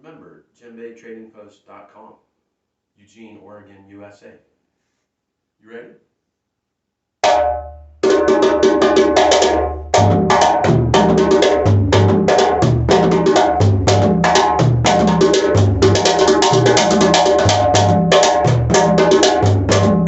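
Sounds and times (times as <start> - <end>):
djembe drumming by hand: 7.2 - 20.0.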